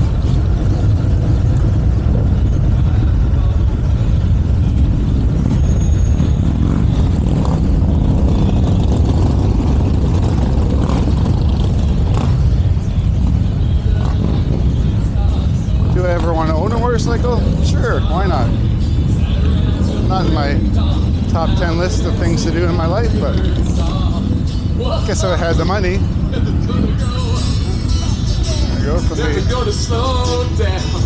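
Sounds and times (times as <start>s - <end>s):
motorcycle engines rumbling: 0.0s - 31.0s
street traffic: 0.0s - 31.0s
faint crowd chatter: 9.9s - 31.0s.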